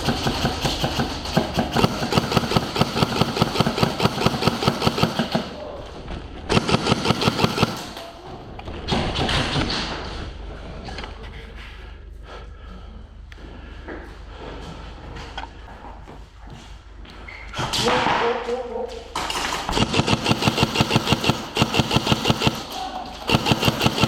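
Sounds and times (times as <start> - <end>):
airsoft rifles firing full auto: 0.0 - 5.7, 6.5 - 8.2, 19.2 - 24.0.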